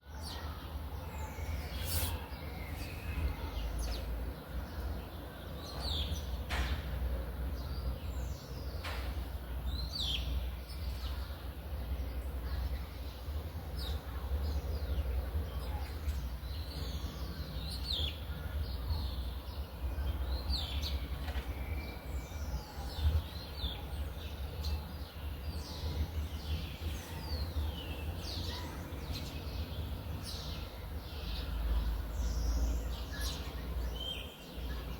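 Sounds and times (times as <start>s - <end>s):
birds chirping: 14.6s - 34.9s.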